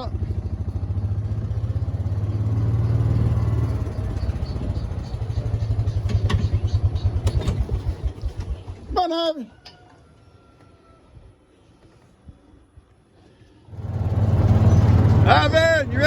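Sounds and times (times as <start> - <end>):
small engine running: 0.0 - 8.8, 13.7 - 16.0.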